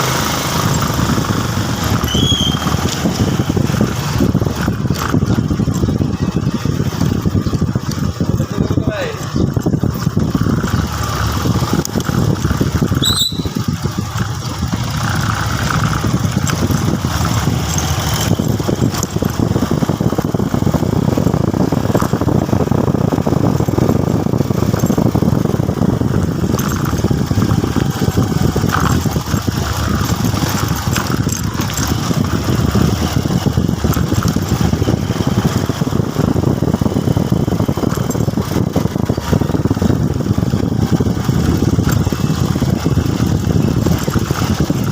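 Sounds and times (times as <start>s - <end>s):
motorcycle running: 0.0s - 44.9s
brief high squeal: 13.0s - 13.6s.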